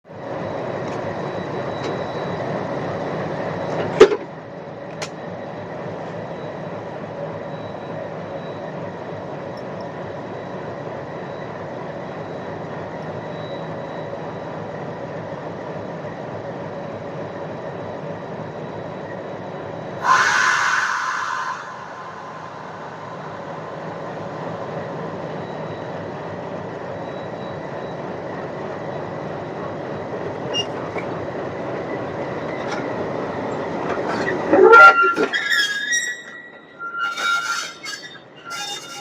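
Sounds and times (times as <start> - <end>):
train rumbling on track: 0.0 - 39.0
louder brighter sound: 20.0 - 24.1.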